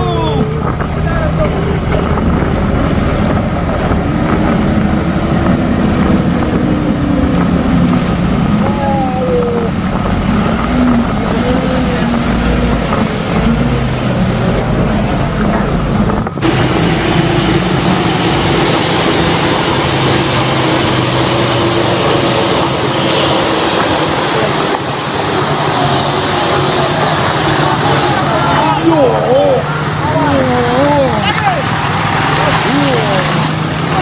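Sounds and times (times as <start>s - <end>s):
truck engine running: 0.0s - 34.0s
voices in background: 24.2s - 34.0s.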